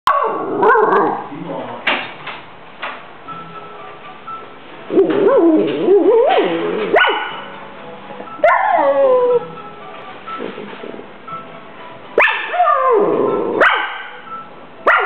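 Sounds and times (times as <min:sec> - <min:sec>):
dog whining vocalizations: 0:04.9 - 0:07.5, 0:08.4 - 0:09.5.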